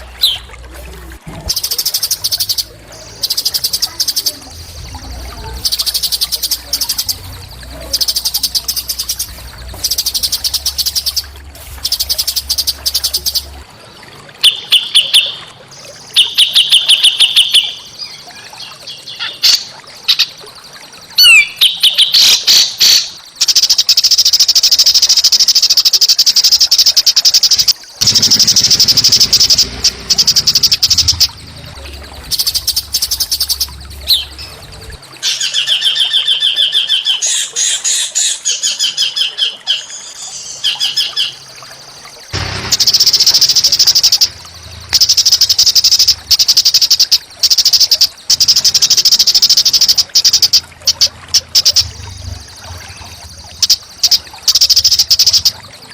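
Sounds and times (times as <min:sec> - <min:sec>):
low steady hum: 0:00.0 - 0:14.3, 0:28.0 - 0:35.2, 0:42.3 - 0:47.5, 0:48.1 - 0:55.9
songbird buzzy trills: 0:00.0 - 0:55.9.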